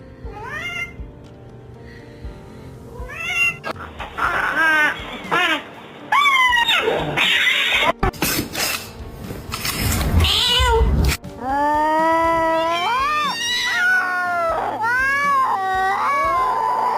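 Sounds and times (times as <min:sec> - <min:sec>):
cat meowing: 0:00.3 - 0:01.0, 0:03.0 - 0:05.4, 0:10.2 - 0:11.0, 0:11.9 - 0:16.9.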